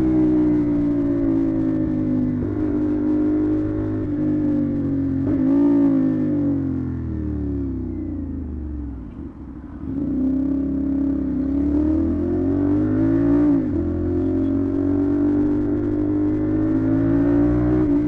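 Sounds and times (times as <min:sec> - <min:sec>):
motorcycle engine revving: 0:00.0 - 0:07.8, 0:09.3 - 0:18.0.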